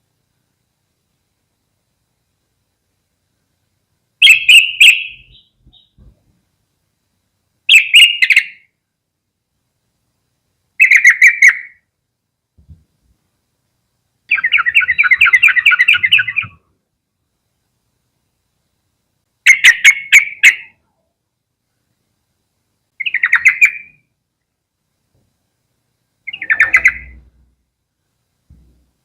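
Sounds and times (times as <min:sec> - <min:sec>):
bird calling and chattering: 0:04.2 - 0:06.1, 0:07.7 - 0:08.7, 0:10.8 - 0:11.8, 0:14.3 - 0:16.6, 0:19.4 - 0:20.8, 0:23.0 - 0:24.0, 0:26.2 - 0:27.3.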